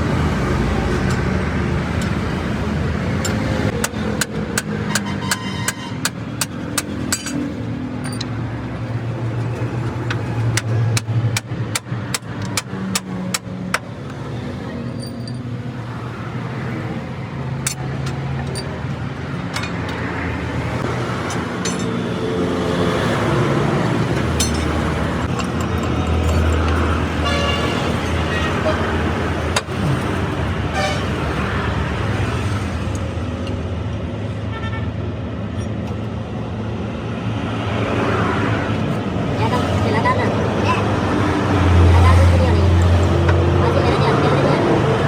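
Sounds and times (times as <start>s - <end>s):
vehicle engines on busy road: 0.0s - 45.0s
sharp metallic clinks: 21.2s - 22.1s, 24.3s - 26.8s.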